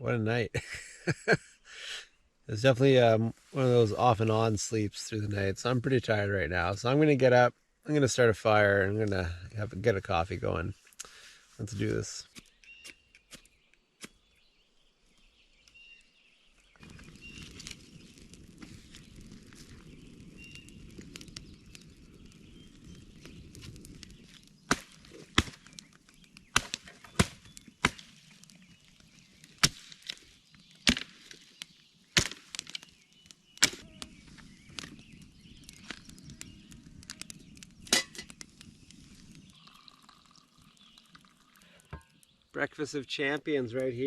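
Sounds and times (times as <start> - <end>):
firewood chopping strikes: 24.7 - 25.8, 26.5 - 28.1, 29.6 - 30.2, 30.8 - 31.4, 32.2 - 32.9, 33.6 - 34.1.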